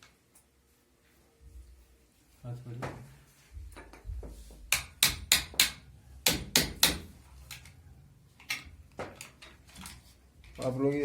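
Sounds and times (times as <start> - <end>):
hammer strikes: 4.6 - 7.2.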